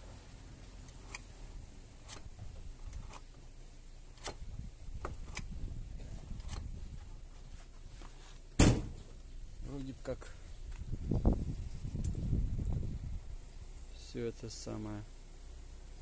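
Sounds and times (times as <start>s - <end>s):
choke linkage clicks: 2.0s - 3.3s, 4.1s - 4.4s.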